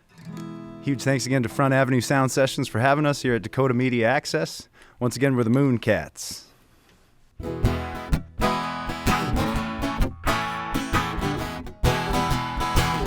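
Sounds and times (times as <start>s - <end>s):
acoustic guitar strummed chords: 0.1s - 2.9s, 7.4s - 13.0s.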